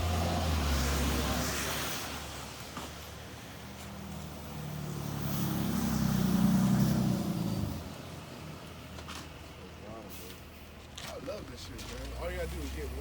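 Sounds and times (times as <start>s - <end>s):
vehicle engine driving past: 4.0s - 8.0s.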